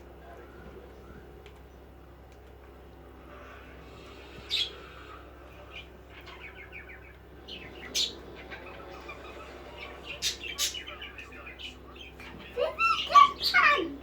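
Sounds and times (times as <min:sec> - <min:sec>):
budgerigars chattering: 0:04.1 - 0:14.0
loud sharp budgerigar chirps: 0:04.2 - 0:14.0.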